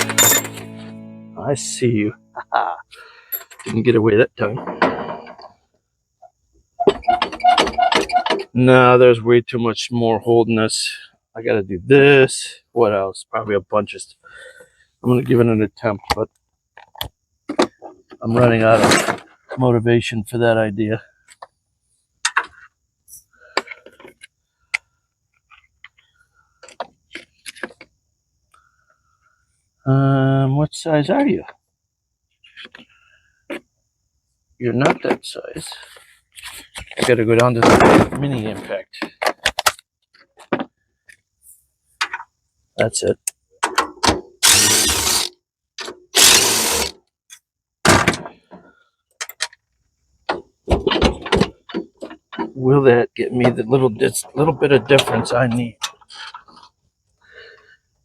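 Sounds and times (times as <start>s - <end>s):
metal hand tools clinking: 0.0s - 0.7s, 3.3s - 3.7s
impact wrench on bolt: 44.4s - 45.3s, 46.2s - 47.0s.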